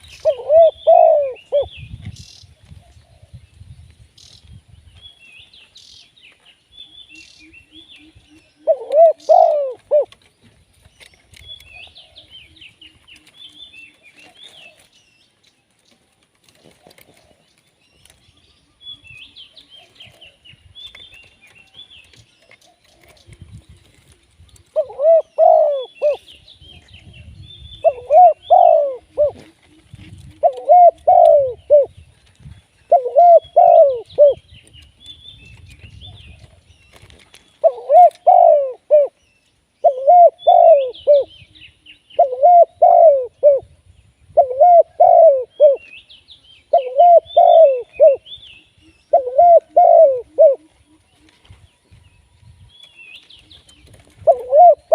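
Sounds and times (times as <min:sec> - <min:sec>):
dove cooing: 0:00.0 - 0:01.8, 0:06.9 - 0:10.3, 0:22.7 - 0:32.0, 0:32.9 - 0:34.4, 0:37.6 - 0:39.2, 0:39.8 - 0:41.5, 0:42.1 - 0:46.0, 0:46.7 - 0:51.6, 0:53.8 - 0:54.9
small birds chirping: 0:00.0 - 0:54.9.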